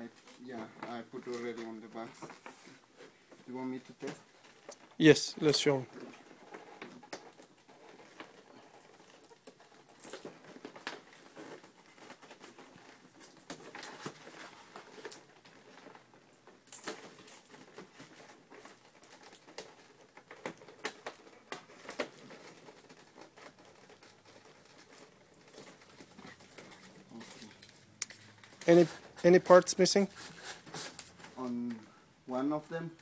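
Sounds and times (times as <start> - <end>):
packaging rustling: 0.1 - 33.0
small objects clicking and tapping: 4.0 - 29.8.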